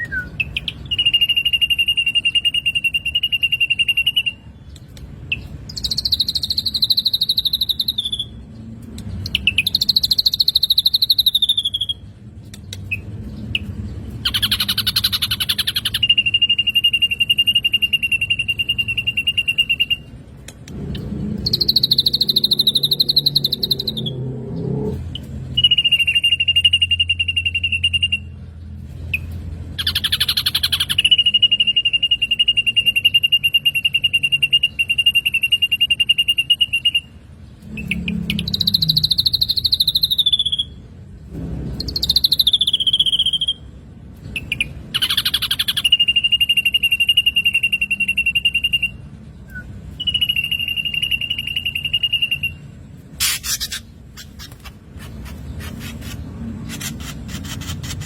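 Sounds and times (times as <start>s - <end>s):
bird trilling calls: 5.3s - 8.4s, 12.8s - 20.1s, 21.4s - 24.2s, 29.2s - 40.8s, 44.3s - 58.0s.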